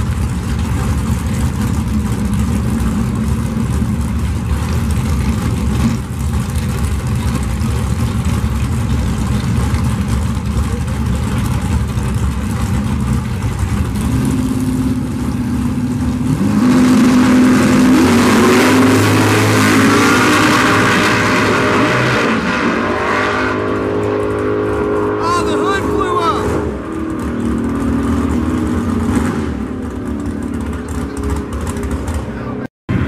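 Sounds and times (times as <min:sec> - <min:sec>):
drag racing car engines revving: 0:00.0 - 0:33.0.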